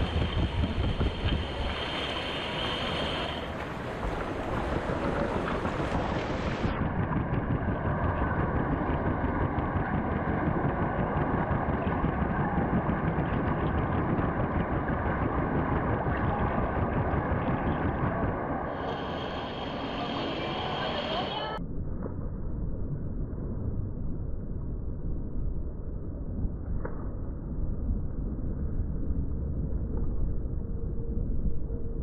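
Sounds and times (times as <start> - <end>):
water churning and splashing: 0.0 - 6.7
muffled underwater water pulsing: 0.0 - 21.6.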